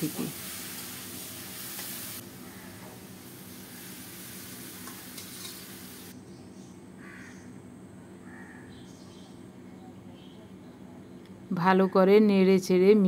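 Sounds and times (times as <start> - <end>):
vegetables sizzling in a pan: 0.0 - 6.1
metal spatula scraping a pan: 4.8 - 5.8.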